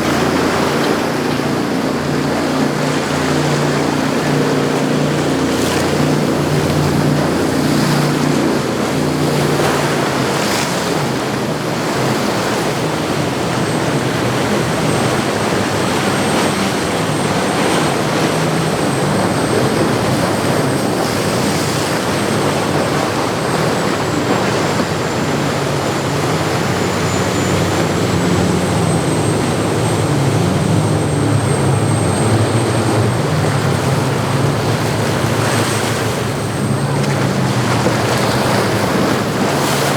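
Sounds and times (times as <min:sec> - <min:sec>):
boat diesel engines running: 0:00.0 - 0:39.9
rushing water from wake: 0:00.0 - 0:39.9
wind on microphone: 0:00.0 - 0:39.9
thin high whine: 0:13.9 - 0:39.9.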